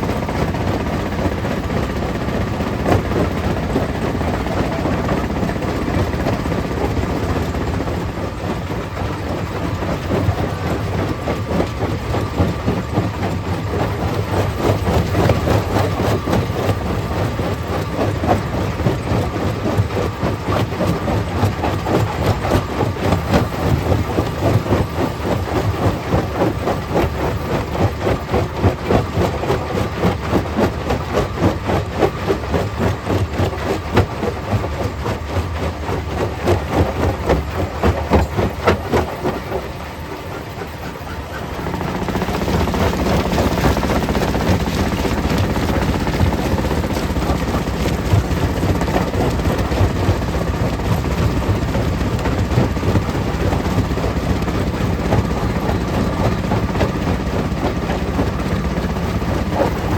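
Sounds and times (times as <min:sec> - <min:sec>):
heavy machine drone: 0:35.7 - 0:52.3.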